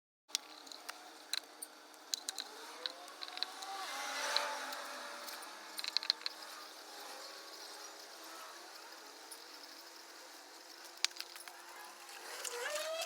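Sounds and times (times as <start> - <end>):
sharp clicks and light clinks: 10.7 - 12.6.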